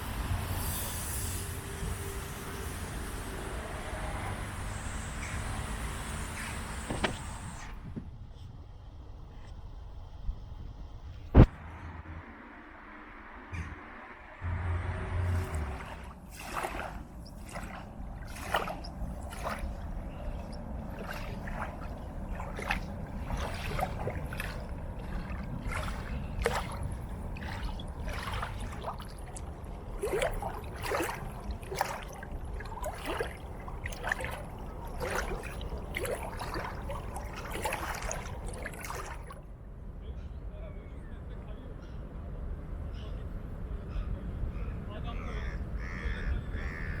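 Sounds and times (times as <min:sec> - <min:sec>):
water trickling and splashing: 0:00.0 - 0:07.8, 0:15.0 - 0:39.5.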